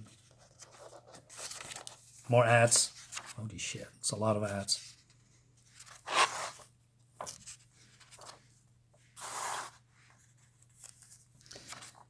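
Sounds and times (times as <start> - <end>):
comic book pages turning: 0.2 - 3.4, 5.6 - 8.5, 9.2 - 12.0.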